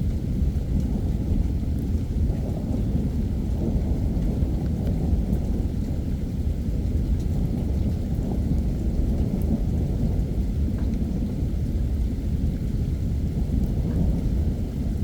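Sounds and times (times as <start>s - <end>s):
low rumble of thunder: 0.0s - 15.0s
heavy rain pouring: 2.1s - 15.0s.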